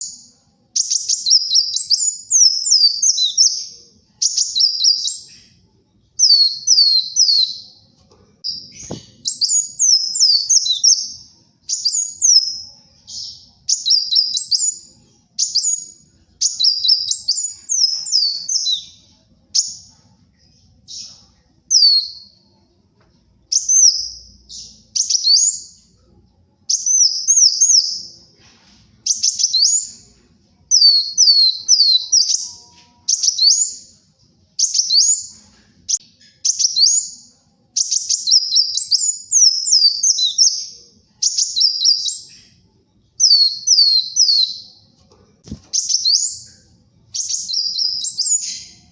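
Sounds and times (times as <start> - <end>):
sunbird chirping: 0.0 - 20.1, 34.6 - 48.9.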